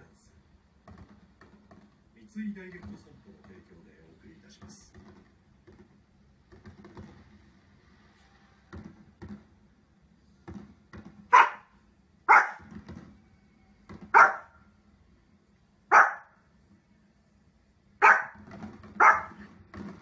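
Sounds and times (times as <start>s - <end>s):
dog barking: 11.3s - 12.7s, 14.1s - 14.6s, 15.9s - 16.4s, 18.0s - 18.4s, 19.0s - 19.5s.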